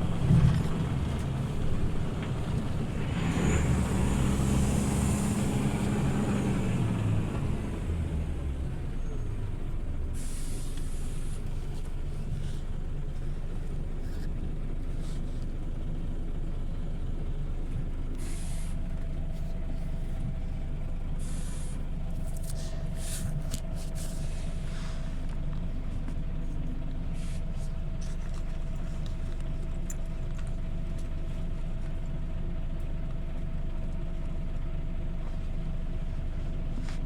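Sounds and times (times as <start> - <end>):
bus diesel engine idling: 0.0 - 37.0
air brake hisses: 10.2 - 11.4, 18.2 - 18.8, 21.2 - 21.8.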